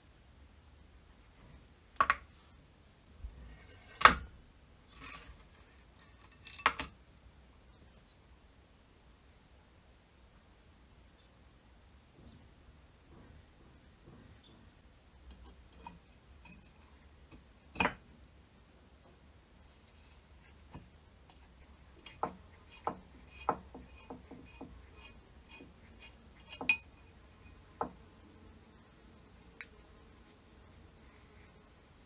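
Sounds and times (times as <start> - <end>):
metallic clinks and knocks: 5.0 - 7.0, 19.8 - 27.7.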